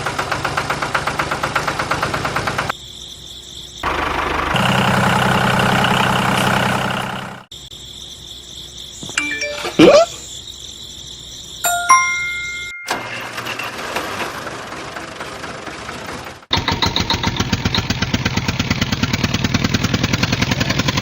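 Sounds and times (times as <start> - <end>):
small engine chugging: 15.0 - 21.0.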